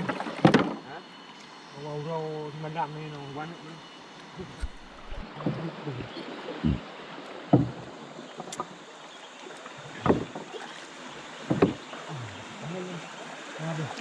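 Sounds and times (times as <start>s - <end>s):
river water rushing: 0.0s - 14.0s
short irregular thumps: 4.4s - 5.3s, 11.5s - 11.8s.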